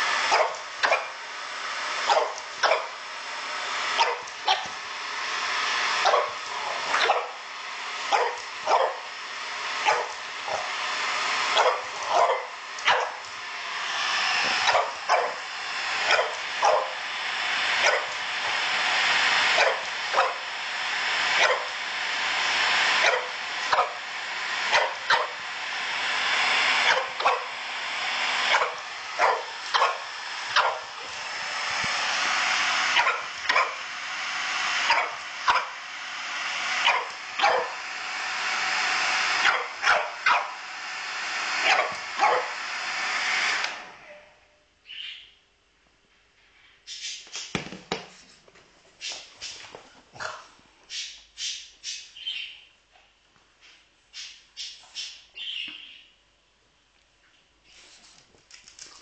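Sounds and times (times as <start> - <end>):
hair dryer hissing: 0.0 - 44.2, 46.9 - 48.3, 49.0 - 52.3
dog barking: 0.3 - 1.2, 2.0 - 3.0, 4.0 - 4.7, 6.0 - 7.4, 8.1 - 9.1, 9.8 - 10.7, 11.5 - 13.2, 14.6 - 15.4, 16.0 - 17.0, 17.8 - 18.1, 19.6 - 20.4, 21.4 - 21.8, 23.0 - 24.0, 24.7 - 25.4, 26.9 - 27.5, 28.5 - 30.9, 32.9 - 33.8, 34.9 - 35.8, 36.8 - 37.8, 39.4 - 40.6, 41.6 - 42.6.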